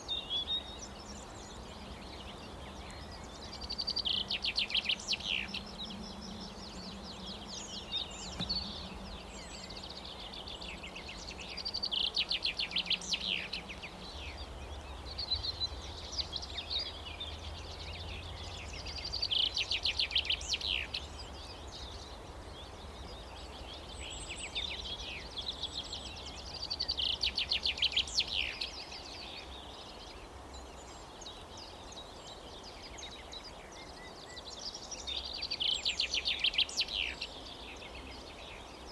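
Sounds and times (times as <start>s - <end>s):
songbird singing trilled phrases: 0.0s - 30.0s.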